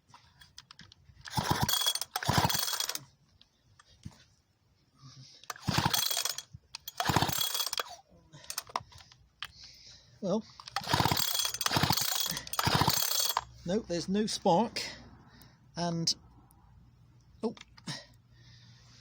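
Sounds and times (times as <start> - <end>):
chainsaw recoil starter ratcheting: 0.4 - 3.1, 5.4 - 9.1, 10.6 - 13.6.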